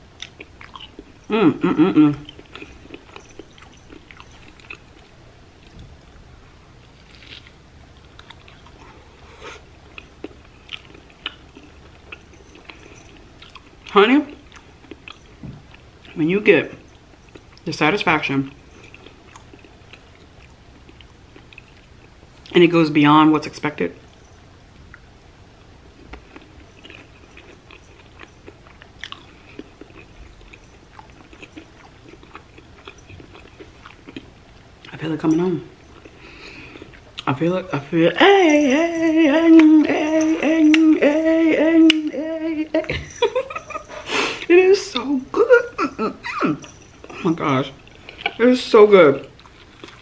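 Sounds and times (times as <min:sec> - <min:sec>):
biting and chewing crunchy food: 0:00.0 - 0:01.4, 0:02.2 - 0:05.9, 0:06.8 - 0:17.7, 0:18.4 - 0:22.6, 0:25.9 - 0:37.7, 0:46.7 - 0:50.0.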